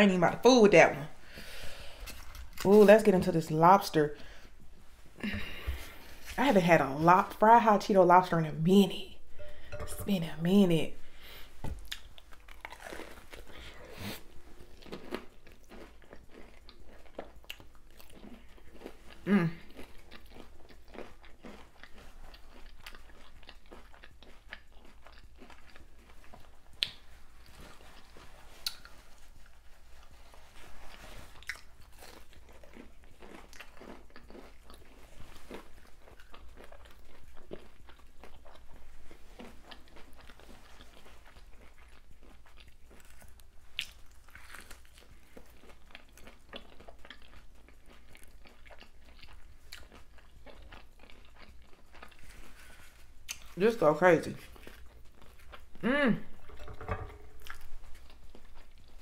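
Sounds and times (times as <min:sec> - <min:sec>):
moist chewing: 0:11.7 - 0:53.6
crunching fried coating: 0:39.4 - 0:55.8.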